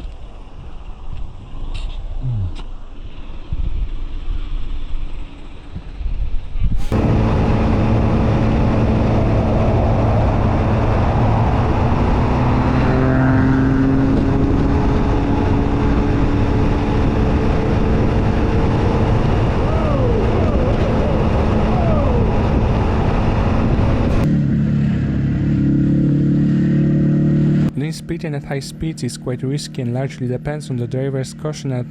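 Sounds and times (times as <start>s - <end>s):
wind noise: 0.0s - 24.3s
short falling whines: 6.8s - 24.3s
motorcycle engine running: 6.8s - 30.1s.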